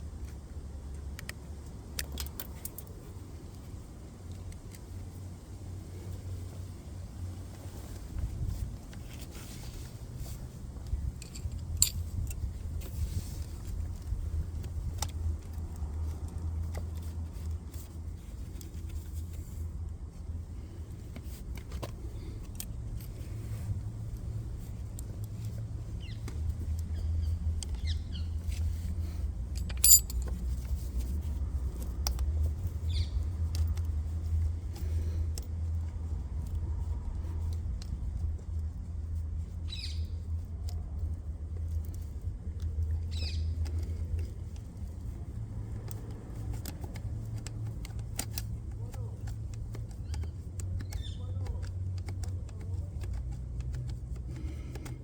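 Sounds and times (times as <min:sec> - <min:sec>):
metallic clicks and clinks: 0:01.9 - 0:03.0, 0:11.1 - 0:12.8, 0:29.5 - 0:30.8.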